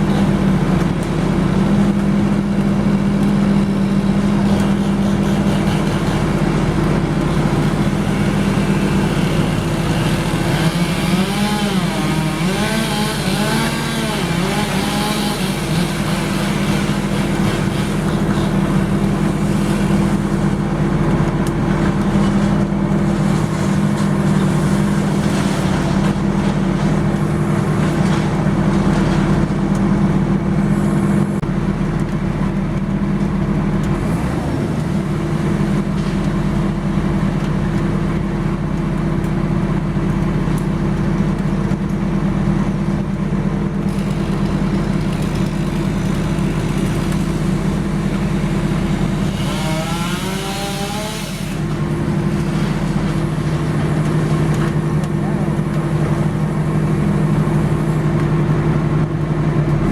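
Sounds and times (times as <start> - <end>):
machine engine running: 43.0 - 59.9.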